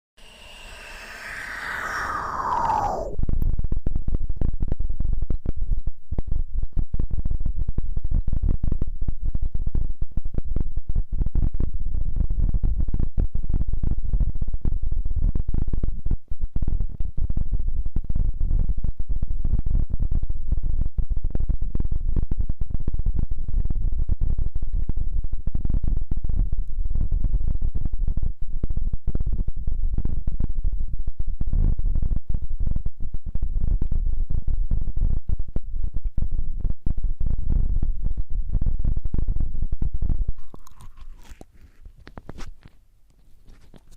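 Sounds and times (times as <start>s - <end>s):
rubbing and crackling on microphone: 37.3s - 43.9s.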